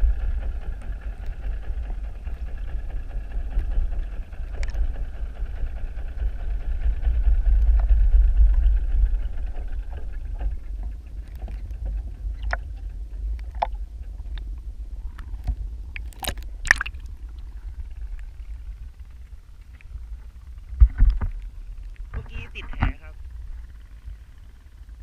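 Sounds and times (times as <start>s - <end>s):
distant boat engine hum: 0.0s - 25.0s
underwater low rumble: 0.0s - 25.0s
sharp clicks and ticks: 15.1s - 17.1s.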